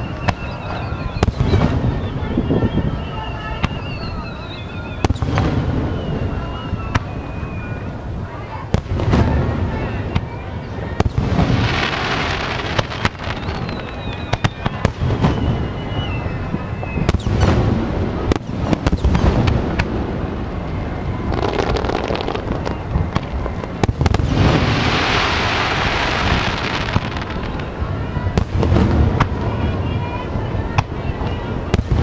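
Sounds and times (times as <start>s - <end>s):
falling whistle: 0.0s - 8.0s, 11.8s - 17.3s
dense hissing of fireworks: 0.0s - 32.0s
fireworks bangs: 0.0s - 32.0s.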